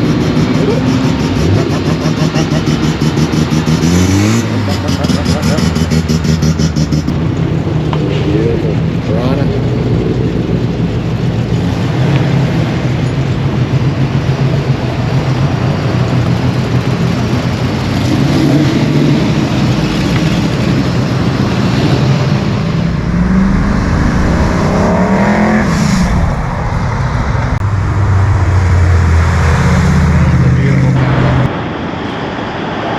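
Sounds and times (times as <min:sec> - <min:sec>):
engine revving: 0:00.0 - 0:31.7
car engines rumbling: 0:00.0 - 0:32.9
deeper engine note: 0:19.1 - 0:31.8.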